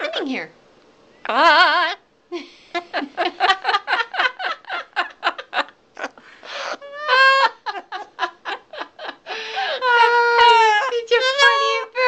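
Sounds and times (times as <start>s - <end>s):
parrot laugh-like calls: 5.4s - 8.2s.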